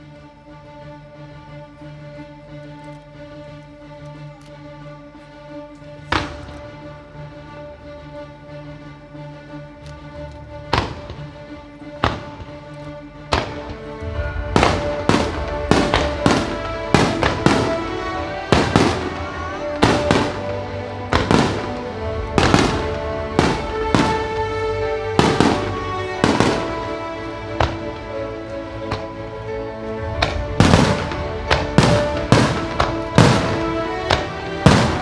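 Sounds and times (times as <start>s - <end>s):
music: 0.0s - 35.0s
firework shells bursting: 13.3s - 29.1s, 30.0s - 35.0s.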